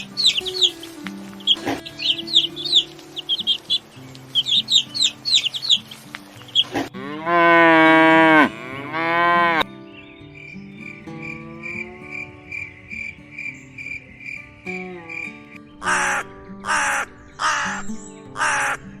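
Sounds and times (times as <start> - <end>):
bird chirps: 0.0 - 6.9, 9.2 - 19.0
soft background music: 0.0 - 19.0
cow mooing: 6.8 - 9.6.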